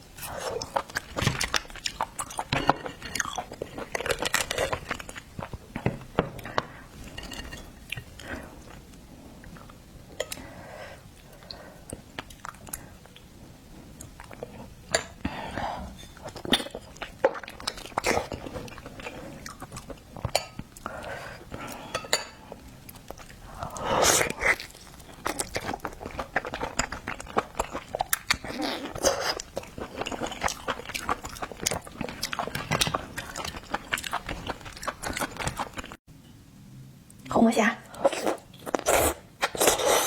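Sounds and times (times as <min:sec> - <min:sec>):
chewing and crunching: 0:00.4 - 0:05.8, 0:16.2 - 0:21.0, 0:22.8 - 0:36.0.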